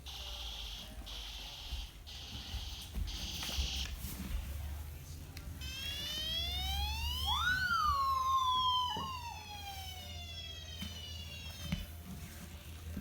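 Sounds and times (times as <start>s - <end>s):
shorter wailing tone: 5.6s - 10.2s
toy police siren wailing: 5.6s - 11.9s.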